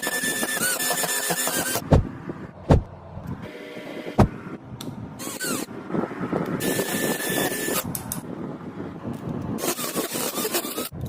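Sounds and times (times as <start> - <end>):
scraping rubbing on gears: 9.6 - 11.0.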